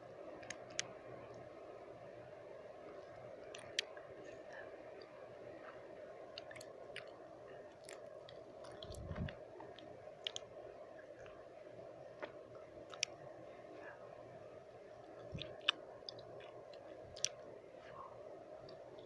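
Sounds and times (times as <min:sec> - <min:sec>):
background white noise: 0:00.0 - 0:19.0
tongue and lip clicks: 0:03.4 - 0:04.0, 0:07.8 - 0:10.5, 0:12.2 - 0:13.2, 0:15.2 - 0:17.4.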